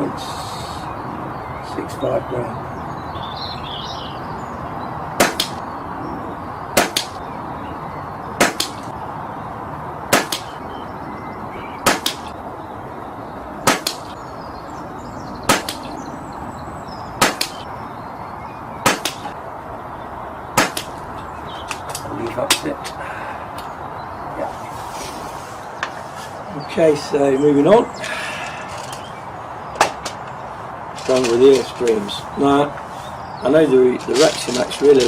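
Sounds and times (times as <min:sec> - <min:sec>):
air rifle shots: 0:05.2 - 0:05.6, 0:06.8 - 0:07.2, 0:08.4 - 0:08.9, 0:10.1 - 0:10.6, 0:11.8 - 0:12.3, 0:13.6 - 0:14.2, 0:15.5 - 0:15.9, 0:17.2 - 0:17.6, 0:18.8 - 0:19.4, 0:20.6 - 0:21.0.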